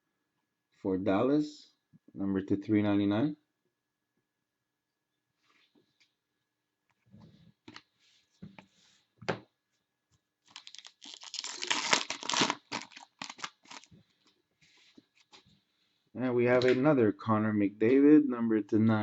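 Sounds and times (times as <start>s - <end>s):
wrapper tearing and crinkling: 10.5s - 13.9s.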